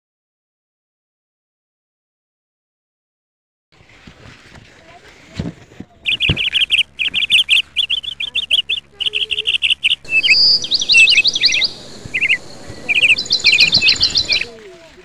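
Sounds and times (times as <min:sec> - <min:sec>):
small birds chirping: 0:05.9 - 0:15.0.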